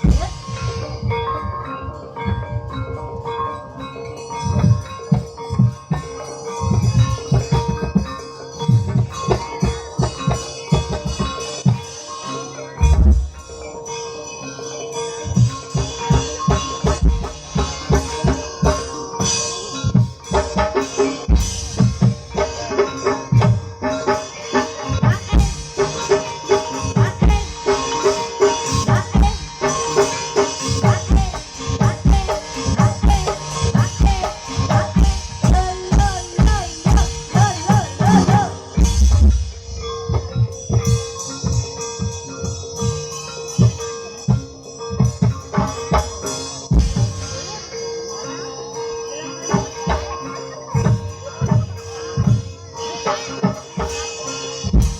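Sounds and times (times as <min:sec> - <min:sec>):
mallet percussion: 0:00.0 - 0:54.9
hand drum strokes: 0:15.2 - 0:47.7.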